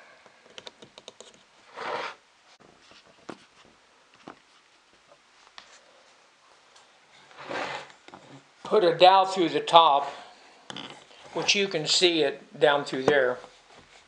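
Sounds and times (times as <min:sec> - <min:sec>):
wooden box scrape: 0:01.7 - 0:02.2, 0:07.3 - 0:07.9.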